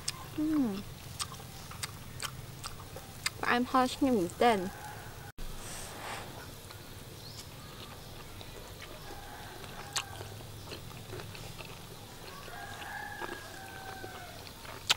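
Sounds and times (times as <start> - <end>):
person chewing: 0.0 - 3.5, 6.7 - 14.9.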